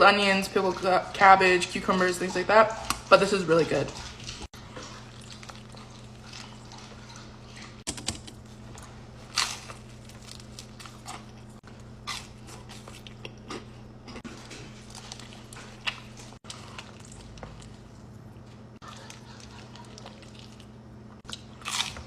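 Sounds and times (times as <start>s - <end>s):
steady low hum: 0.0s - 22.0s
person chewing crunchy food: 4.0s - 22.0s.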